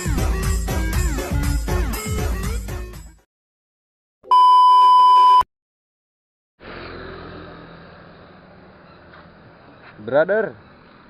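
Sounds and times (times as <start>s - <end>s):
electronic beep: 4.3s - 5.5s.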